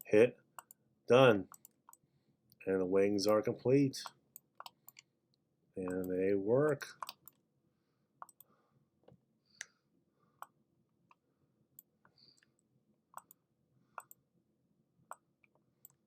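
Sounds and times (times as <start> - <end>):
computer mouse clicking: 6.7 - 7.4, 8.2 - 8.5, 13.2 - 13.4, 14.0 - 14.2.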